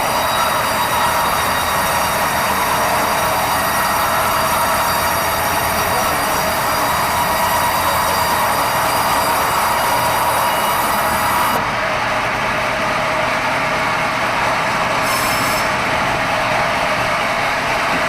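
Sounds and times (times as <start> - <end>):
band saw cutting log: 0.0 - 11.6, 15.0 - 15.9.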